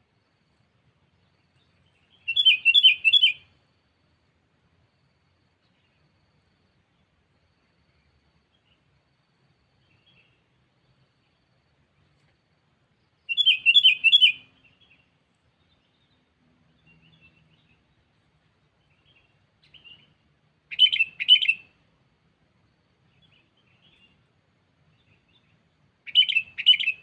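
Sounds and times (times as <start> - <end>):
bulbul calling: 2.0 - 3.5, 13.3 - 15.0, 18.9 - 21.8, 26.0 - 27.0.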